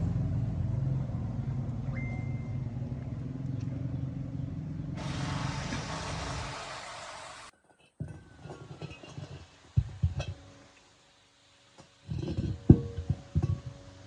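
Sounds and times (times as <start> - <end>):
vehicle engine drone: 0.0 - 7.5
steady hiss: 5.0 - 14.0.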